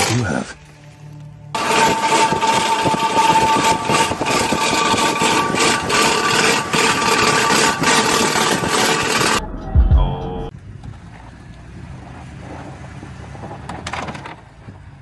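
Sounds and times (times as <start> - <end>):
rattling: 1.6 - 9.4
vehicle engine: 1.6 - 9.6
road noise: 10.5 - 15.0.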